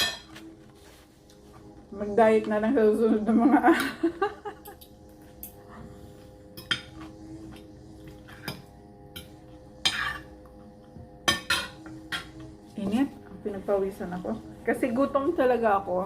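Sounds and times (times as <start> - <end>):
cutlery clinking on a plate: 11.2 - 12.3.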